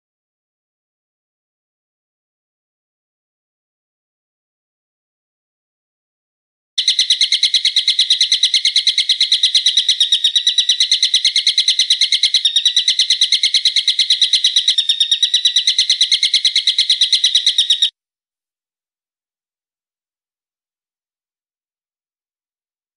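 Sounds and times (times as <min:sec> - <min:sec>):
songbird repeating shrill notes: 0:06.8 - 0:17.9.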